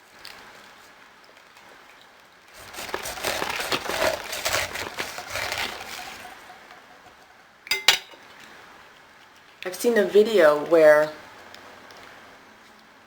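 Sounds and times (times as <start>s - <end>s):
pineapple being cut: 2.5s - 6.6s.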